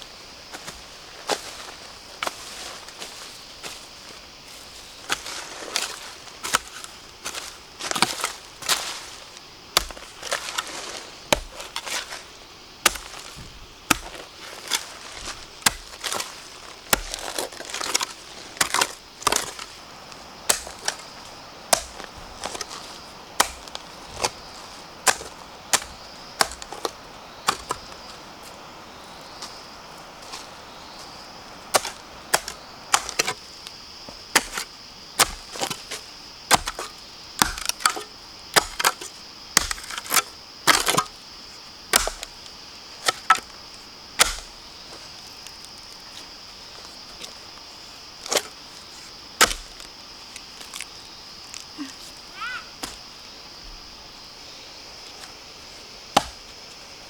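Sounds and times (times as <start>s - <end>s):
blade chopping bamboo: 12.8s - 14.8s, 15.6s - 19.7s, 20.5s - 21.1s, 21.7s - 24.4s, 25.0s - 26.9s, 31.7s - 33.4s, 34.3s - 41.1s, 41.9s - 42.4s, 44.2s - 44.6s, 49.4s - 49.8s, 56.2s - 56.5s.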